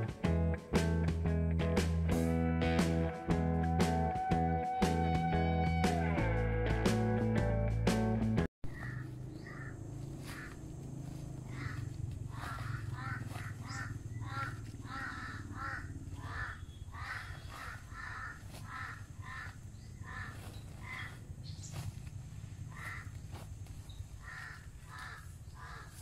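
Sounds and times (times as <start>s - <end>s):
bird calls: 8.7s - 26.0s.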